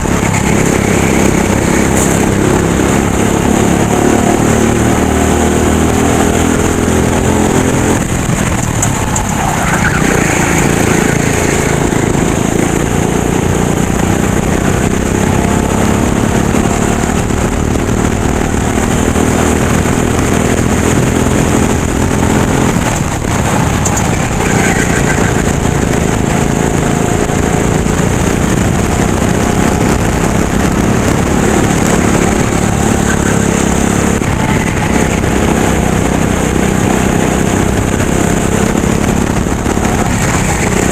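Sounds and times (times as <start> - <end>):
racing kart engine revving: 0.0 - 40.9.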